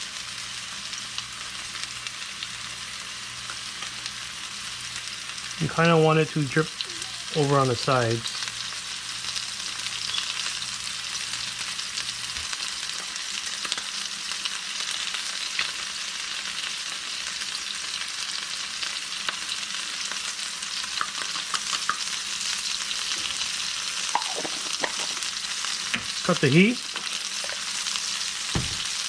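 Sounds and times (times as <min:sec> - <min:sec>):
fish sizzling in a frying pan: 0:00.0 - 0:29.0
oil spitting: 0:23.0 - 0:27.8.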